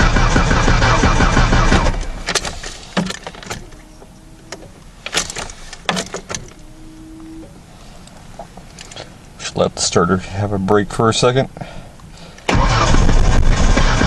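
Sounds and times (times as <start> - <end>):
starter cranking engine: 0.0 - 3.8, 12.4 - 14.0.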